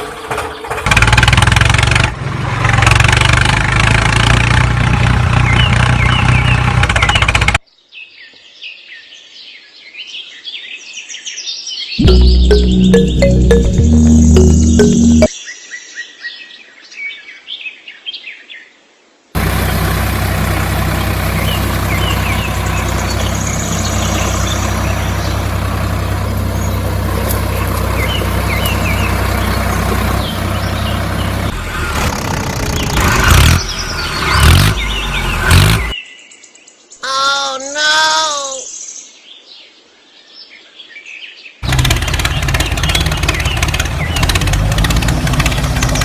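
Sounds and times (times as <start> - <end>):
music: 12.0 - 15.3
birds chirping: 20.8 - 39.8, 40.4 - 46.0.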